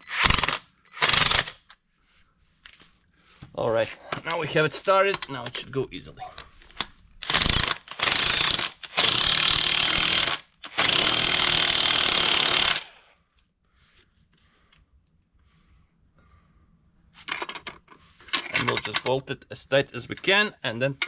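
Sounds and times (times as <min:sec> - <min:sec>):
power tool spinning a nut: 0:00.0 - 0:01.7, 0:06.8 - 0:13.1.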